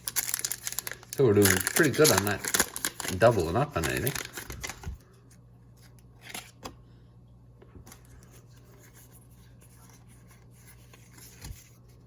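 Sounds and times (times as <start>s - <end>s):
card pack crinkling: 0.0s - 5.0s
low steady hum: 0.0s - 12.0s.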